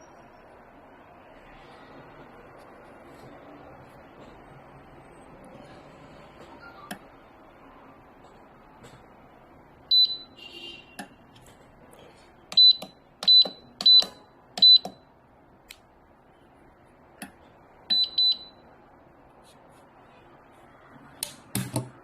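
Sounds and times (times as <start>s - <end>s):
keypad beeps: 6.5s - 7.1s, 9.9s - 10.4s, 12.5s - 15.1s, 17.9s - 18.6s.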